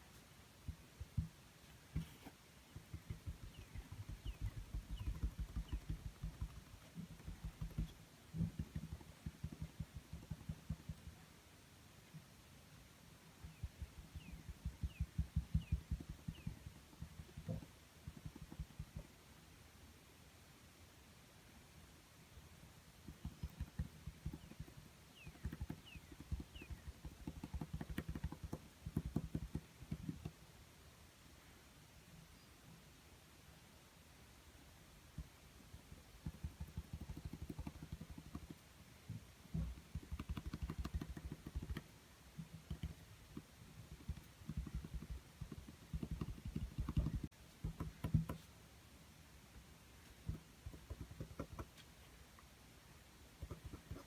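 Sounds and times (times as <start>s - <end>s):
paintbrush tapping on canvas: 0.6s - 11.1s, 13.4s - 19.1s, 23.1s - 30.4s, 36.2s - 38.6s, 39.5s - 48.5s, 50.2s - 51.9s, 53.4s - 54.0s
faint bird chirps: 1.4s - 11.0s, 13.4s - 19.1s, 23.2s - 29.0s, 32.2s - 32.8s.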